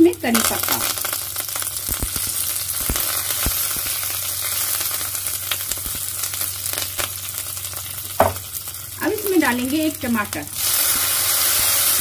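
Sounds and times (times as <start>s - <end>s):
spices sizzling in hot oil: 0.0s - 12.0s
spatula knocking against pan: 8.2s - 8.4s.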